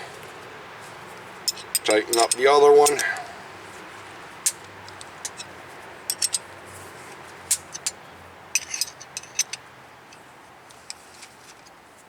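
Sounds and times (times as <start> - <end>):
wrench clicking on metal: 1.5 - 3.2, 6.1 - 6.4, 8.6 - 9.6.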